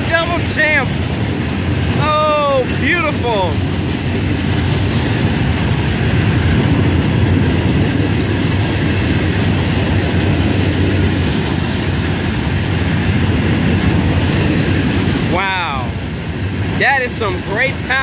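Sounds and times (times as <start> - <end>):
freight train rumbling past: 0.0 - 18.0
wheels clicking over rail joints: 0.0 - 18.0.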